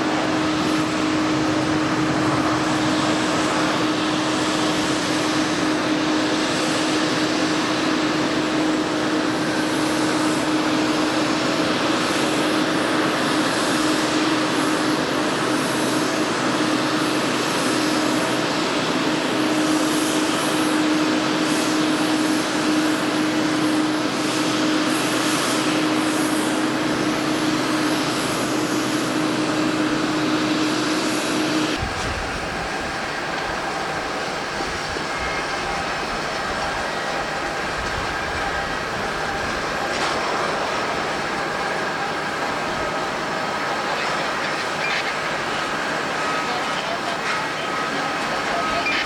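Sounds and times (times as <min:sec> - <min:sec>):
jet engines running: 0:00.0 - 0:49.0.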